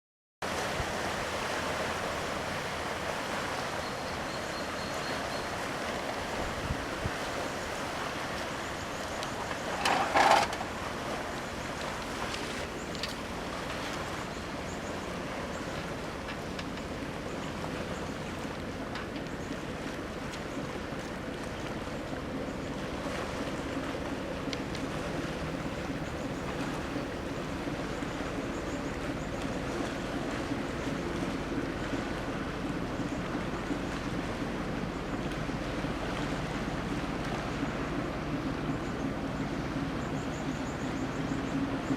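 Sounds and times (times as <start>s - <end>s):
sea water rushing: 0.4s - 41.9s
wind: 0.4s - 41.9s
ship engine droning: 0.5s - 41.9s
wind on microphone: 5.5s - 8.8s.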